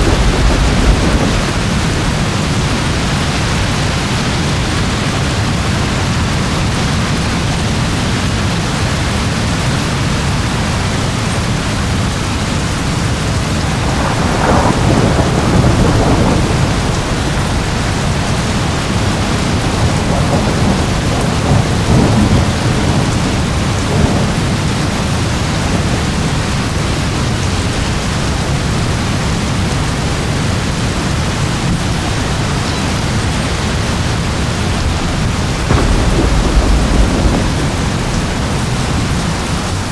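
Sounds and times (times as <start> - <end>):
sharp thunder clap: 0.0 - 5.6, 12.4 - 27.5, 33.6 - 39.9
rolling thunder: 0.0 - 39.9
steady rain: 0.0 - 39.9.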